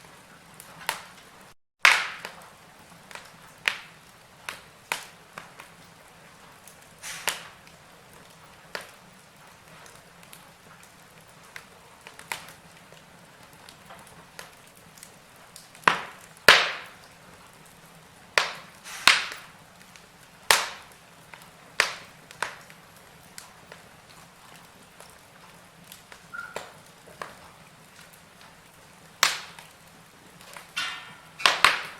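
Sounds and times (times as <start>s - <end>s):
wood fire crackling: 0.0s - 31.9s
sharp fire pops: 0.2s - 31.9s.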